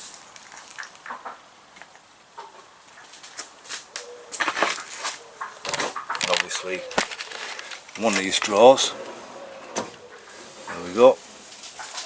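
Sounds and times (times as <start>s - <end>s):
tools clicking and knocking on workbench: 4.4s - 8.9s
clattering of tools: 4.4s - 10.0s.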